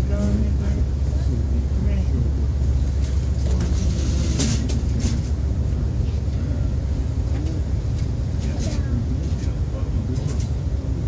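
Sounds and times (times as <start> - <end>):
train car low rumble: 0.0 - 11.0.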